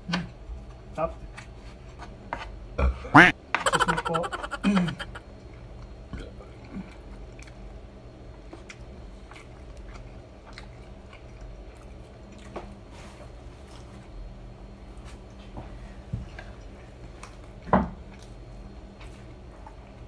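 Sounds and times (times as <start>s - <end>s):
person chewing rice: 8.4s - 14.0s.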